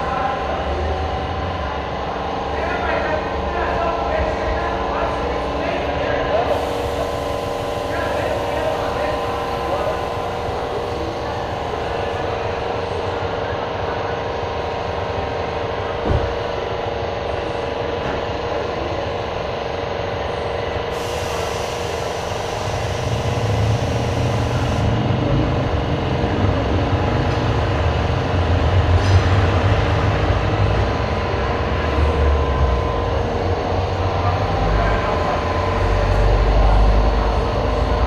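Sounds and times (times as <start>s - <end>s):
hiss of air: 6.5s - 7.8s, 20.9s - 24.8s.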